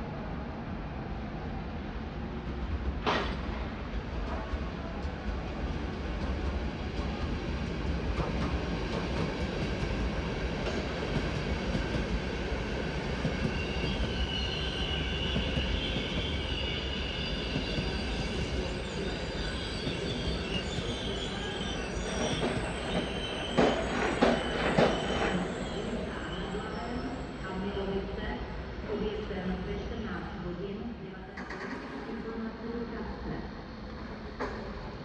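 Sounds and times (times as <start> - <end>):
train rumbling on tracks: 0.0 - 35.0
wheels squealing on rails: 11.6 - 28.0.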